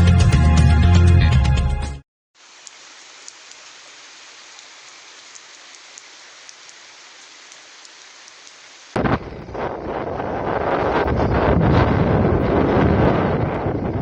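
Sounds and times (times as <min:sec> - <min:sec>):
raindrop ticks: 0:02.4 - 0:10.1
steady rain hiss: 0:02.4 - 0:14.0.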